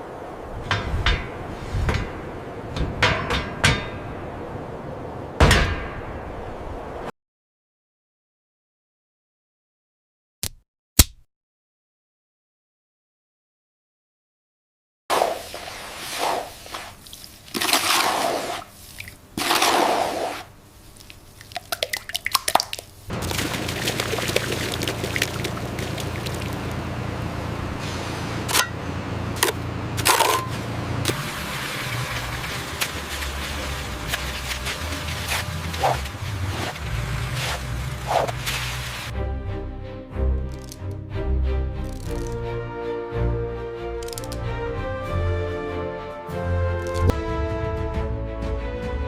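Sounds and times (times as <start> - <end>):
wet sloshing: 15.3 - 26.8, 31.1 - 39.1
low hum: 23.1 - 42.7
small sharp clicks: 40.5 - 41.0, 41.8 - 42.4, 44.0 - 44.4, 46.8 - 47.2.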